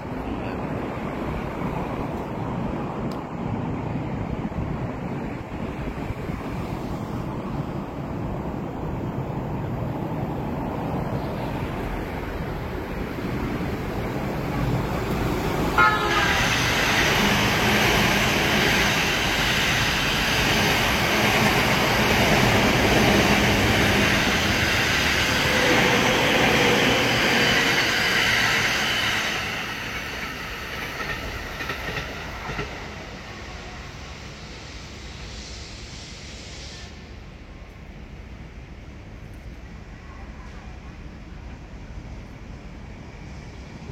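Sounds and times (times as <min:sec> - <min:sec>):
electric train running rumble: 0:00.0 - 0:43.9.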